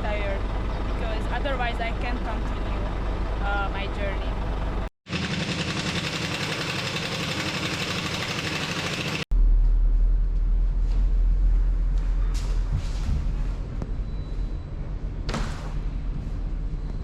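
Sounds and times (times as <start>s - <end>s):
diesel truck engine running: 0.0s - 9.6s.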